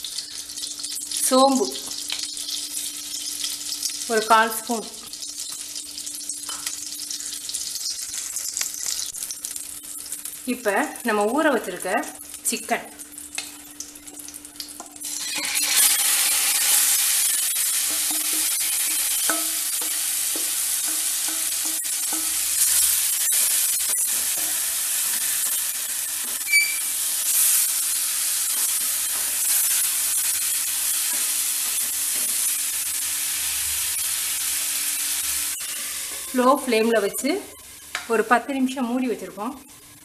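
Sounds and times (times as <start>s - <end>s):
chicken sizzling in a pan: 0.0s - 40.0s.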